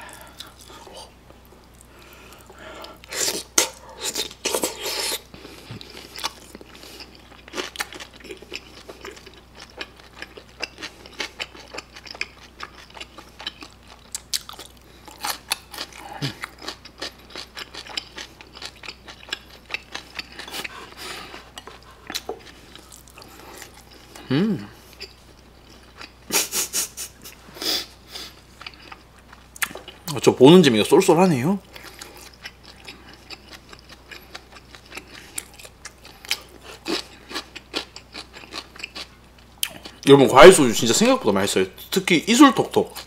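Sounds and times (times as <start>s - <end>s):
person chewing and crunching: 0.0s - 30.2s, 31.5s - 41.2s.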